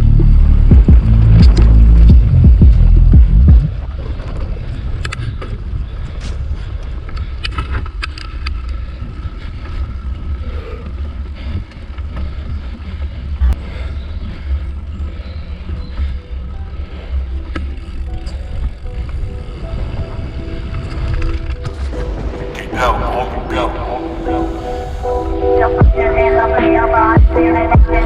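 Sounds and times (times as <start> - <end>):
bike clicks and rattles: 3.8 - 13.3, 14.5 - 19.3.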